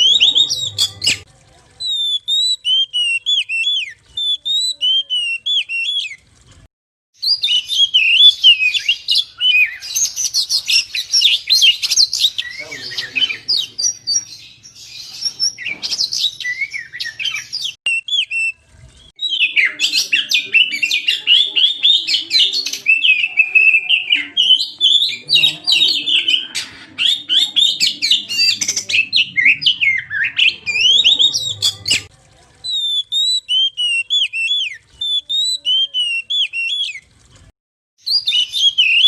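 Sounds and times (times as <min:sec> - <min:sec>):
bird singing: 0:01.8 - 0:06.2, 0:07.2 - 0:32.1, 0:38.0 - 0:39.0.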